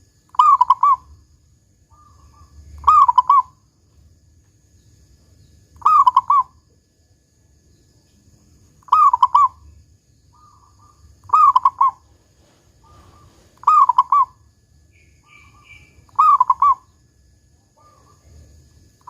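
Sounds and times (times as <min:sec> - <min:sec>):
dove cooing: 0:00.3 - 0:01.1, 0:01.9 - 0:03.6, 0:05.8 - 0:06.6, 0:08.9 - 0:09.7, 0:10.4 - 0:14.4, 0:15.2 - 0:17.0, 0:17.8 - 0:18.4
faint soft bird notes: 0:07.7 - 0:17.0.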